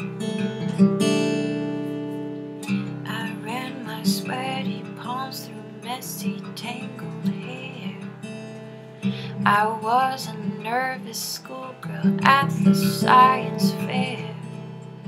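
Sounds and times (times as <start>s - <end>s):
acoustic guitar strumming: 0.0s - 15.0s
woman singing: 2.9s - 8.3s, 9.1s - 15.0s.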